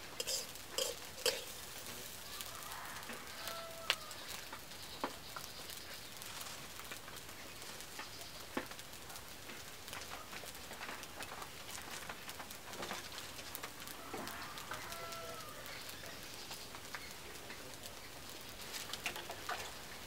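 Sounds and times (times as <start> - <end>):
food sizzling in a wok: 0.0 - 11.8, 12.8 - 20.0
metal spatula scraping a pan: 0.1 - 2.2.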